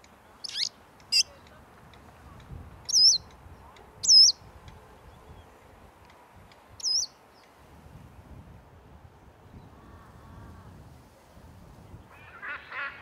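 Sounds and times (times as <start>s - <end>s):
small bird chirping: 0.4s - 1.3s, 2.9s - 3.3s, 4.0s - 4.4s, 6.8s - 7.5s.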